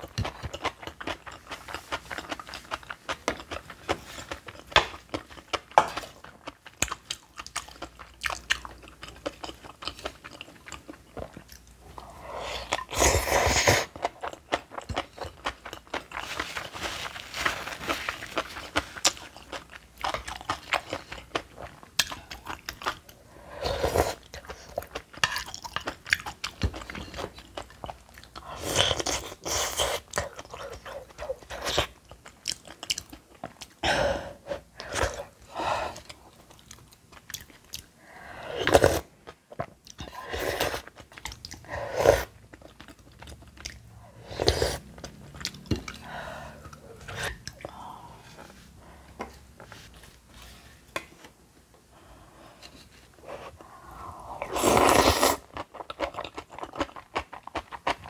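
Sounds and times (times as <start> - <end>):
person chewing and crunching food: 0.0 - 51.3, 52.5 - 58.0.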